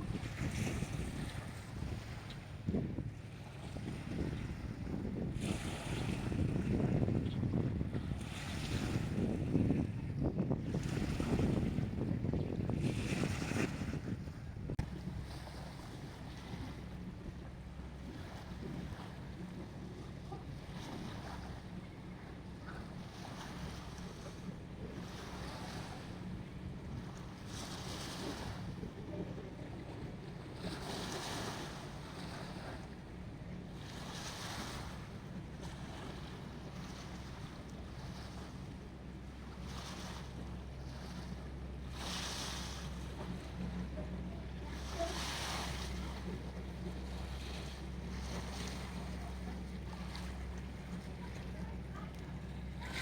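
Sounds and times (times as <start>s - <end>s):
sea waves washing in: 0.0s - 21.9s, 33.8s - 53.0s.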